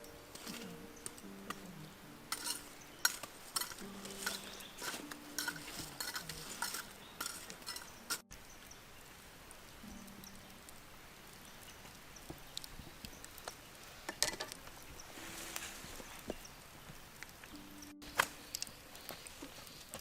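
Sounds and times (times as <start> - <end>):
cooking utensils clinking and scraping: 0.0 - 1.6, 2.3 - 8.2, 14.1 - 14.6
soft low tones: 0.0 - 8.4, 9.0 - 13.1, 17.4 - 18.9.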